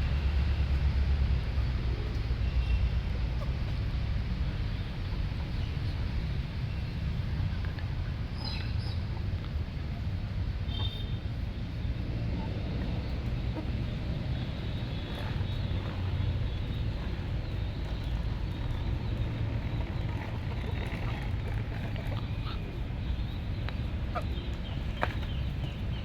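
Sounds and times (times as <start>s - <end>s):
steady low rumble: 0.0s - 26.0s
pigeons calling: 12.4s - 26.0s.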